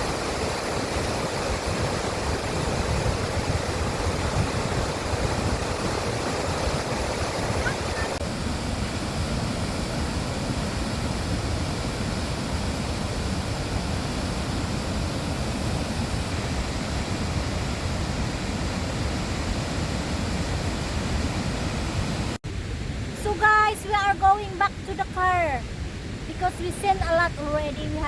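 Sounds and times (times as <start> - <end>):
waterfall rushing: 0.0 - 25.4.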